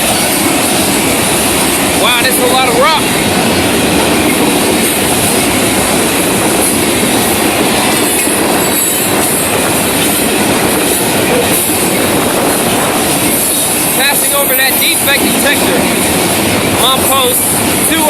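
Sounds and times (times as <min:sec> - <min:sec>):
steel wheels on rail: 0:00.0 - 0:18.0.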